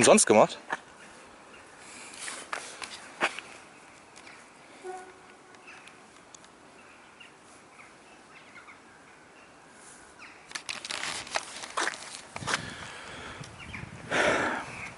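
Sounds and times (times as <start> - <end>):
rustling: 0.7 - 6.5, 9.8 - 12.9.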